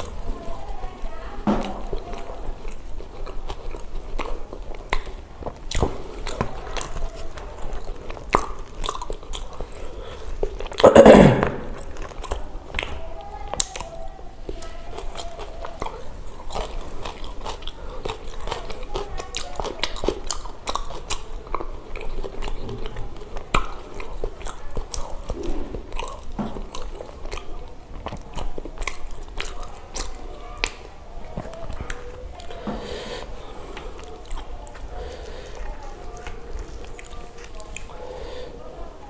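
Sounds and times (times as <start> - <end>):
person chewing: 0.0 - 39.0
wet mouth clicks: 1.6 - 38.0.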